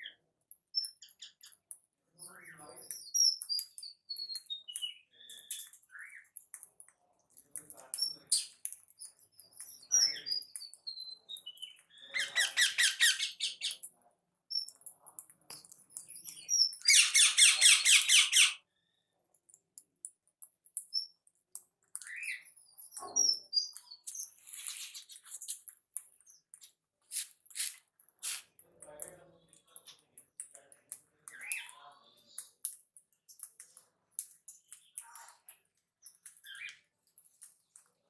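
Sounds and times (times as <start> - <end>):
birds chirping: 0.0 - 6.9, 7.6 - 13.9, 14.5 - 19.1, 21.9 - 25.6, 28.8 - 32.7
birds rattling chatter: 7.4 - 18.6, 28.2 - 38.0.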